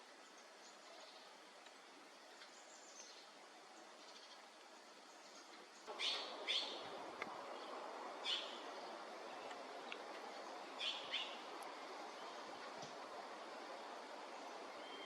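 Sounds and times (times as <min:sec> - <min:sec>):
steady background hiss: 0:00.0 - 0:15.0
bird giving sharp calls: 0:05.9 - 0:06.8.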